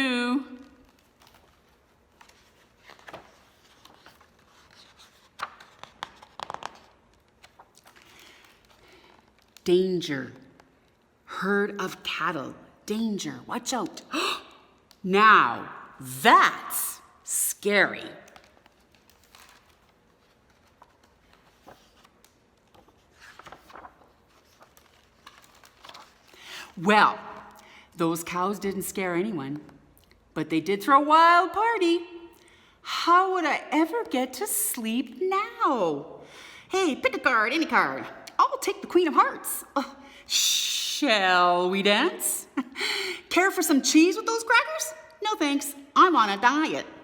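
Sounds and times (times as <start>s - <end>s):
soft rustling: 0.7s - 9.6s, 18.3s - 26.3s
soft rustle: 18.3s - 26.3s.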